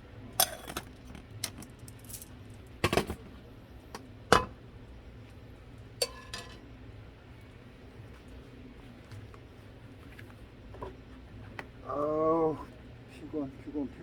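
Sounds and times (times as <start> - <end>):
small hard objects clinking: 0.4 - 2.9.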